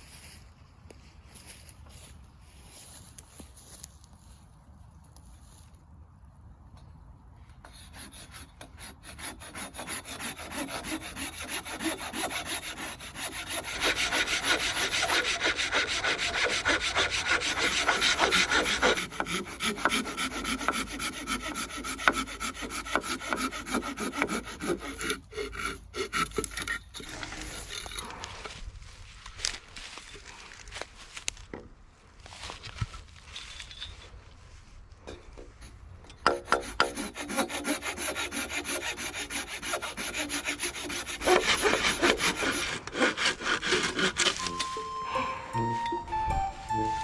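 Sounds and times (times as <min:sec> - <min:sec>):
hand saw cutting wood: 0:07.6 - 0:28.3, 0:36.2 - 0:44.7.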